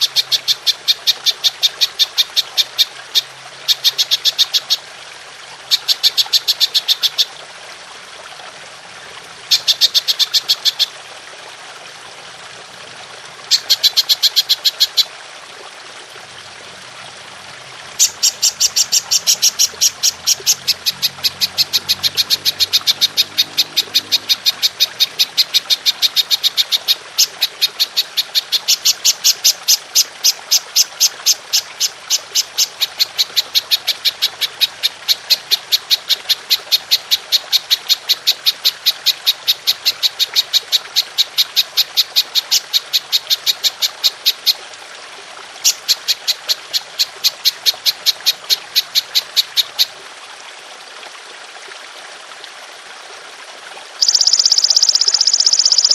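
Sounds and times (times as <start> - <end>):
water trickling: 0.0 - 55.9
grasshopper chirping: 18.0 - 26.8, 54.0 - 55.9.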